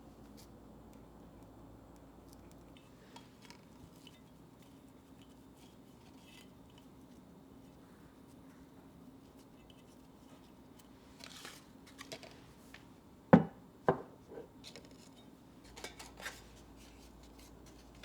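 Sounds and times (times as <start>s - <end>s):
low room hum: 0.0s - 18.0s
kitchen items clicking and tapping: 13.4s - 16.4s.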